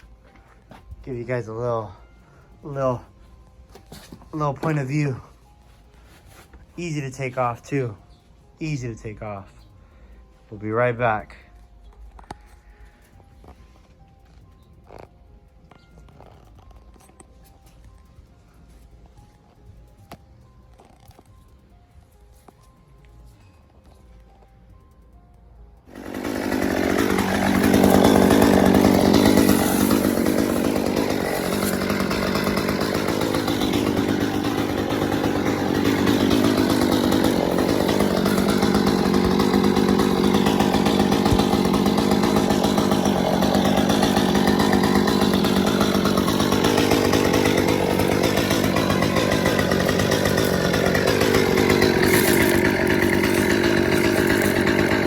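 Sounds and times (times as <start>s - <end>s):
chainsaw cutting: 4.0s - 5.6s, 6.2s - 8.0s, 8.6s - 9.4s, 25.9s - 55.0s.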